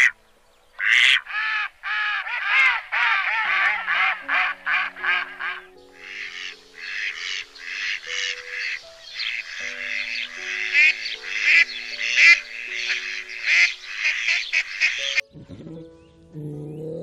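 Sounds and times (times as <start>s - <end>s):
soft background music: 0.0s - 1.2s, 3.2s - 17.0s
duck quacking: 0.8s - 15.2s.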